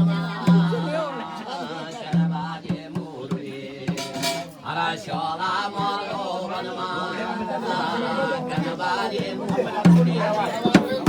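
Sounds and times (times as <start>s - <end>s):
man chanting devotional song: 0.0s - 11.0s
drum strokes: 2.0s - 6.3s, 8.6s - 11.0s.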